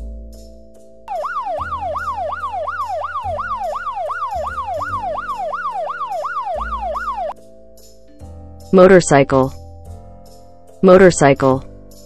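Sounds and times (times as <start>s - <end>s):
police siren yelp: 1.1s - 7.4s.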